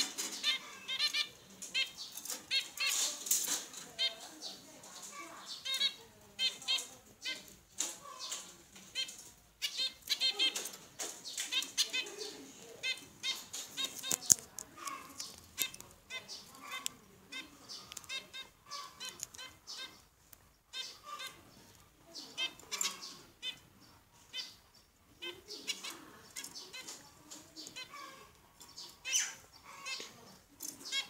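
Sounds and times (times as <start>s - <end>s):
clicks and rustles: 0.0s - 5.3s, 6.6s - 20.5s, 29.9s - 31.0s
small birds chirping: 0.0s - 31.0s.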